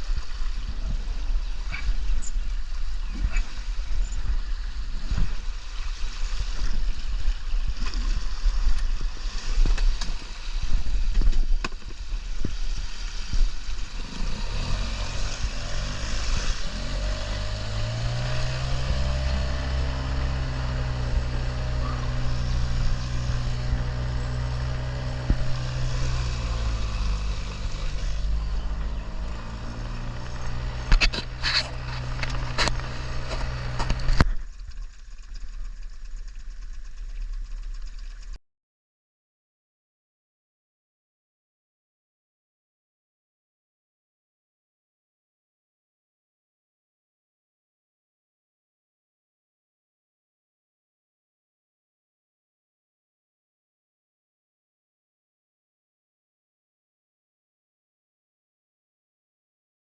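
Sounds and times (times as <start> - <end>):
outboard motor rumbling: 0.0 - 38.4.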